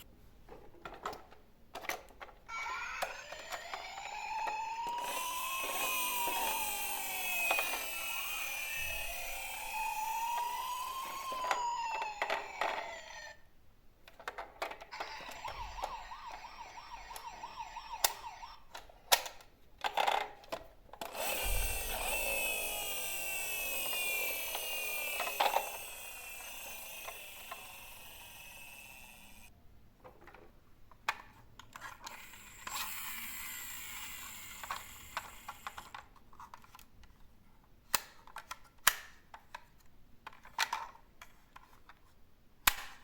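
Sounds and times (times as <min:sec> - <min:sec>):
toy electronic siren wailing: 0:02.5 - 0:13.5, 0:14.9 - 0:19.0, 0:21.1 - 0:29.5, 0:32.2 - 0:36.0
plastic clicks: 0:37.9 - 0:42.0, 0:42.6 - 0:43.0.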